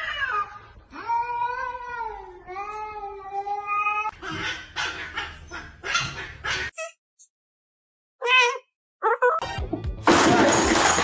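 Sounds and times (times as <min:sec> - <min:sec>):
dog yipping: 0:04.1 - 0:07.0, 0:08.2 - 0:09.4.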